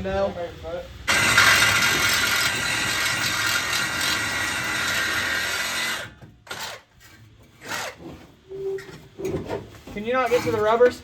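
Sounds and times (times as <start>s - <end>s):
power tool running: 1.1s - 6.7s.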